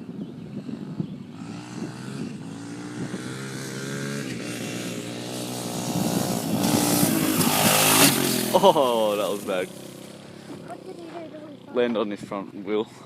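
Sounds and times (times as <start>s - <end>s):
dirt bike engine running: 0.3s - 12.4s.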